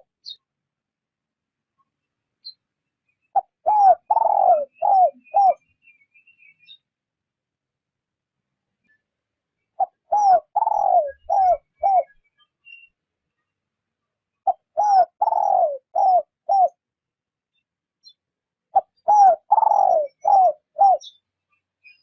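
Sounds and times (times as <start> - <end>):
small birds chirping: 0.0 - 0.6, 1.6 - 7.2, 8.7 - 22.0
dove cooing: 3.4 - 5.6, 9.8 - 12.2, 14.4 - 16.8, 18.7 - 21.2.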